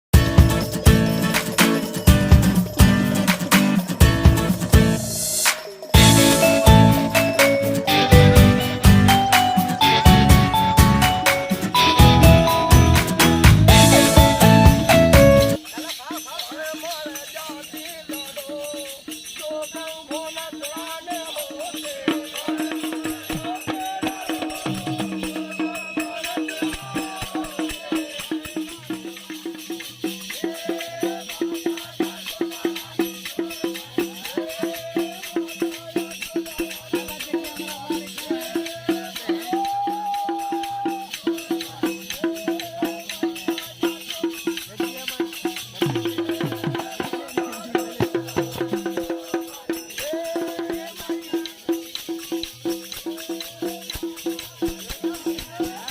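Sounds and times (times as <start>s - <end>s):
folk dance music: 0.1s - 15.6s
shaken percussion: 0.2s - 55.9s.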